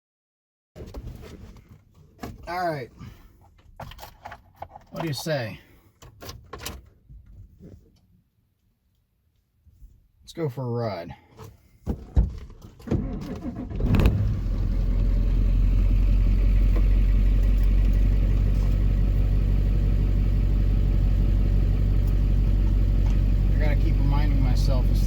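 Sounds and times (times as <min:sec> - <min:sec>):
diesel engine cranking and idling: 0:12.6 - 0:25.0.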